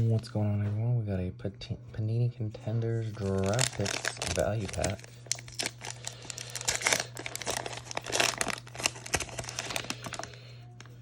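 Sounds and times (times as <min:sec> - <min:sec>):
wrapper tearing and crinkling: 0:03.0 - 0:10.4.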